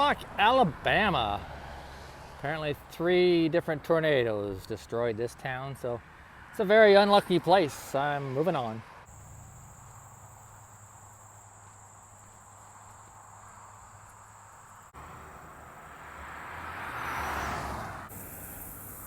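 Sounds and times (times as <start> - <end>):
insects droning: 9.1 - 19.0.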